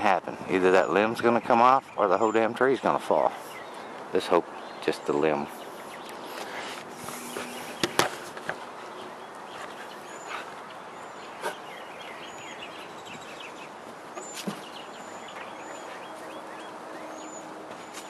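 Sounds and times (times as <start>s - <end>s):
birds twittering: 0.0s - 18.0s
small birds chirping: 0.0s - 18.0s.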